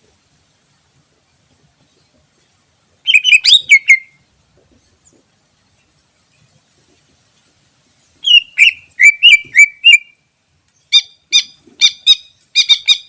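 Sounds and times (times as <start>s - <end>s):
bird whistling and chirping: 3.0s - 4.2s, 8.2s - 10.2s, 10.9s - 13.0s.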